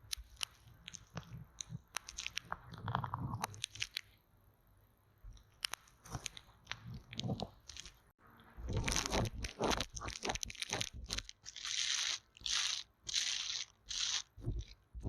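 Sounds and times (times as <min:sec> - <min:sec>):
crackly crunching: 0:00.0 - 0:04.2, 0:05.3 - 0:15.0
scratchy brushing strokes: 0:08.6 - 0:15.0.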